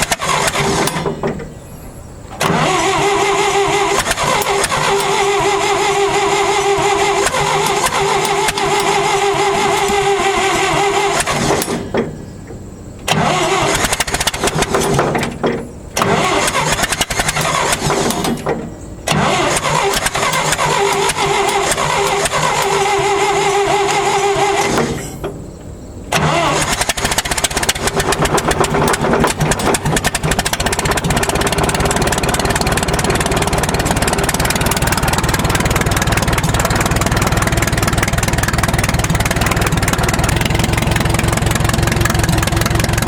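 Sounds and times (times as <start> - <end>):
engine starter cranking: 0.0 - 43.0.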